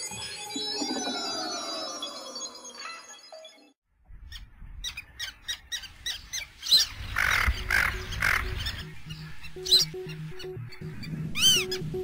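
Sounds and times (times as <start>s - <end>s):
harsh raspy bird calls: 4.9s - 12.0s
house music bass: 7.8s - 12.0s.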